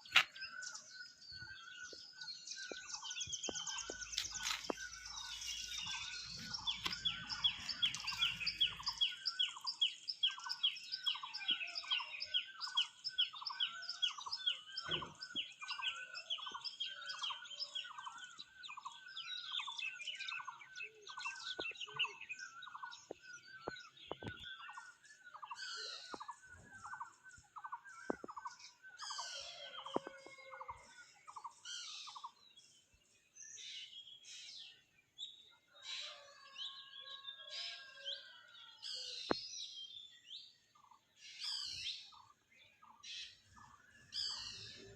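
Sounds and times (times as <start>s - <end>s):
high thin bird chirps: 2.7s - 10.5s.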